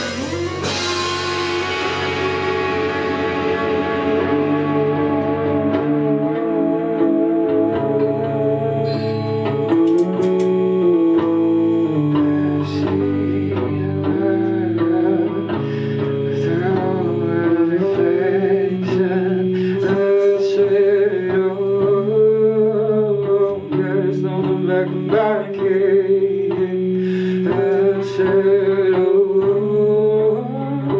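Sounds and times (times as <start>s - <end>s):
live band playing: 0.0s - 21.5s
guitar: 0.0s - 30.9s.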